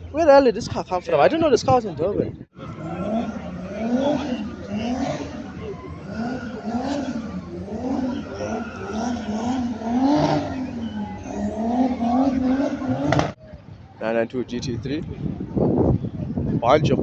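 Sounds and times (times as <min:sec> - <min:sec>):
car engine revving: 0:02.6 - 0:13.4.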